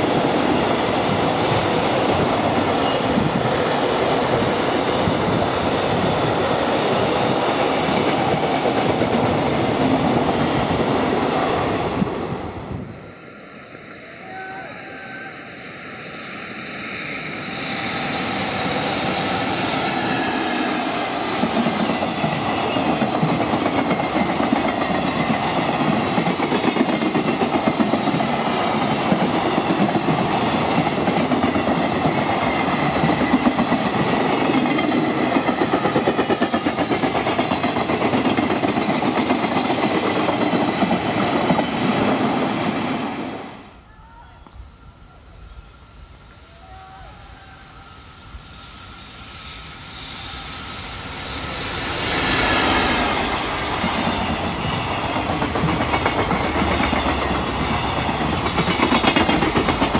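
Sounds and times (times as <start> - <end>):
train wheels clattering over joints: 53.7 - 59.9.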